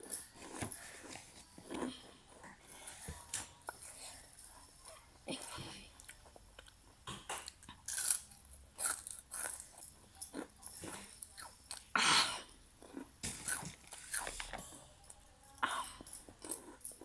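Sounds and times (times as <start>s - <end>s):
person chewing and crunching: 6.0s - 15.2s, 15.9s - 17.0s.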